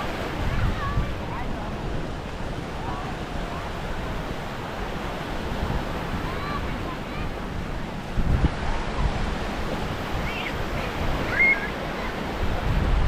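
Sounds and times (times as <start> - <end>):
small waves washing on sand: 0.0 - 13.0
wind buffeting microphone: 0.0 - 13.0
faint high-pitched calls: 10.2 - 10.6, 11.2 - 11.8.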